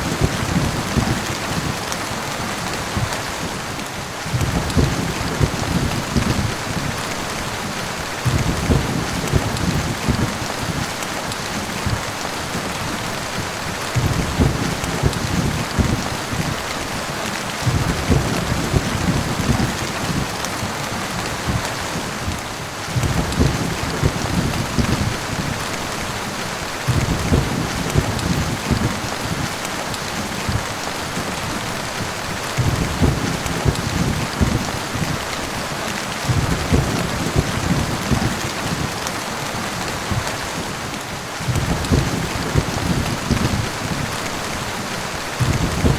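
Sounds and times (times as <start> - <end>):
heavy rain: 0.0 - 45.9
thunder rumbling: 0.0 - 45.9
dull thuds of large drops: 8.2 - 10.4, 14.0 - 16.1, 17.6 - 19.8, 23.0 - 25.2, 32.6 - 35.1, 36.3 - 38.8, 41.5 - 43.8, 45.4 - 45.9.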